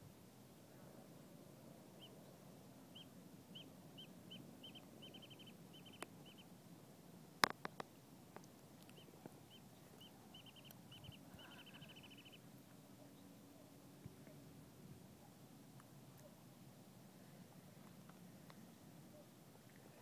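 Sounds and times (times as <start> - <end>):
small bird chirping and trilling: 2.9 - 6.5, 8.9 - 12.4
sharp clicks: 7.4 - 9.0.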